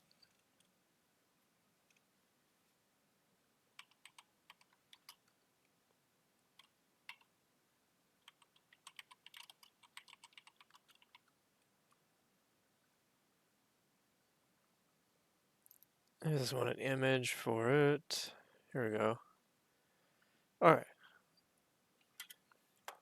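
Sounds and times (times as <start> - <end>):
faint keyboard typing: 0.0 - 0.8, 1.8 - 2.1, 3.7 - 5.8, 6.5 - 7.4, 8.2 - 12.1, 22.0 - 23.0.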